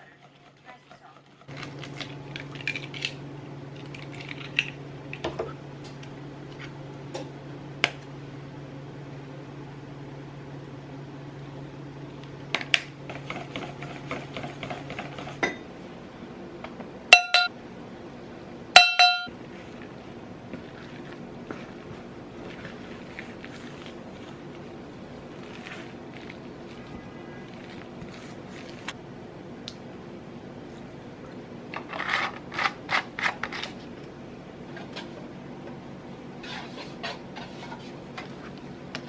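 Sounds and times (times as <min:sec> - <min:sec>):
low appliance hum: 0:00.0 - 0:39.0
dishes and utensils clinking: 0:17.2 - 0:17.5, 0:18.8 - 0:19.3.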